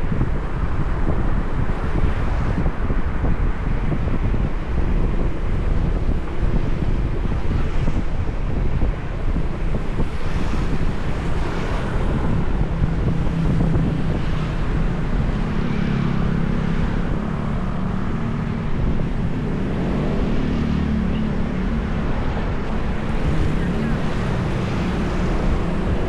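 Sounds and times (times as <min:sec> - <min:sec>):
road traffic noise: 0:00.0 - 0:26.0
wind rushing over microphone: 0:00.0 - 0:26.0
engine hum: 0:02.4 - 0:26.0.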